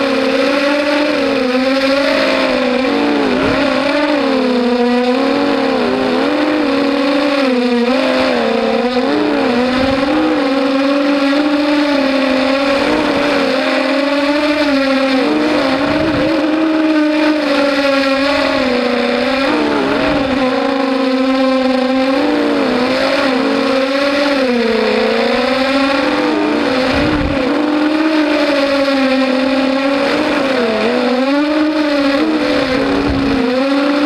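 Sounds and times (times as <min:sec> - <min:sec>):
quadcopter motors buzzing: 0:00.0 - 0:34.0.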